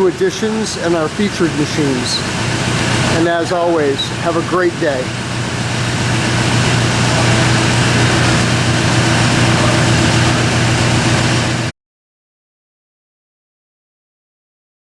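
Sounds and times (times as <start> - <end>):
machine humming and hissing: 0.0 - 11.7.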